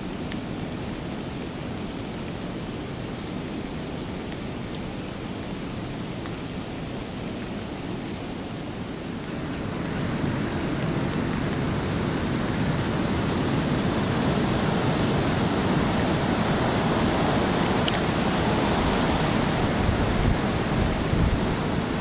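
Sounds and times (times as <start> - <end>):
storm wind blowing: 10.4 - 22.0.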